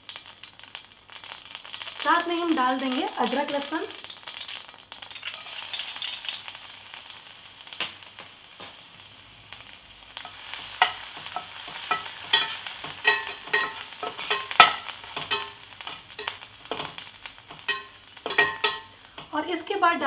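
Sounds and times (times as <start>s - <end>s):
seeds sizzling in hot oil: 0.0s - 20.0s
spoon scraping and clicking on pan: 10.2s - 19.3s.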